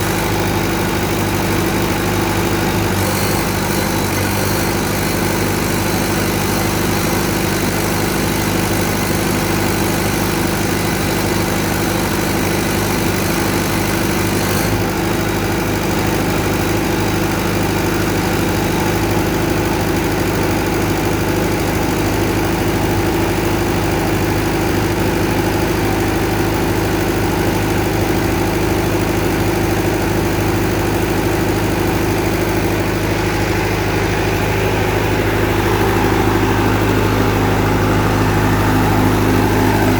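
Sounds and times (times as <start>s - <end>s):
diesel generator running: 0.0s - 39.9s.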